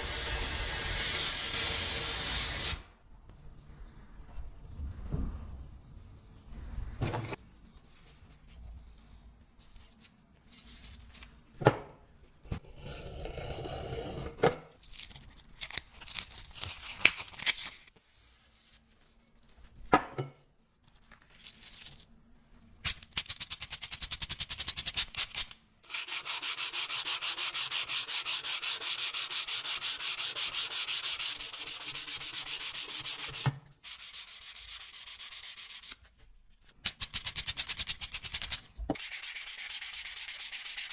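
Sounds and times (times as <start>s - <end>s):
knocks and scrapes: 4.3s - 7.5s
fast rasping sanding: 25.9s - 36.0s.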